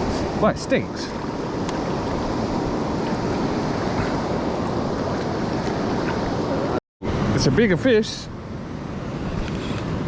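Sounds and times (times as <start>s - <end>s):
river water flowing: 0.0s - 7.5s.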